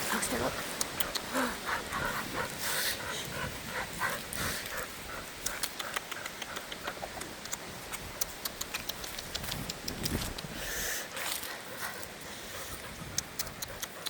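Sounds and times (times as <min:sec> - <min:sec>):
dog panting: 0:00.0 - 0:14.0
sharp clicks and crackles: 0:05.4 - 0:10.5, 0:13.1 - 0:14.0.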